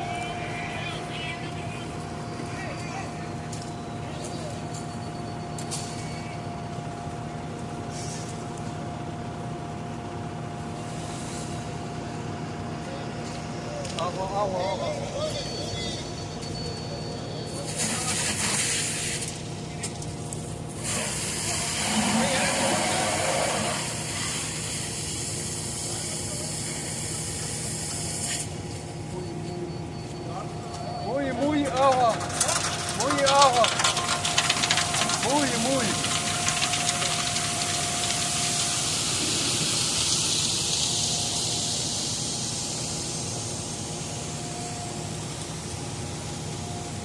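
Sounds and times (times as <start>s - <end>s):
engine running with whine: 0.0s - 47.0s
water spraying from a hose: 17.6s - 19.4s, 20.7s - 28.6s, 33.3s - 47.0s.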